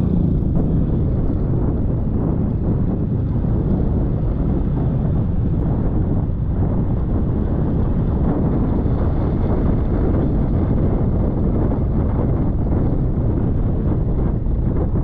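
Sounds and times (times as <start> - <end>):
scooter engine: 0.0 - 1.7
road noise: 0.0 - 15.0
wind buffeting microphone: 0.0 - 15.0.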